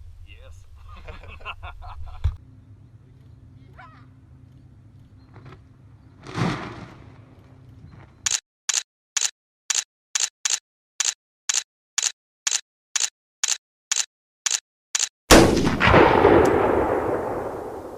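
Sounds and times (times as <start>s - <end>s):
short sharp clicks: 8.3s - 15.1s.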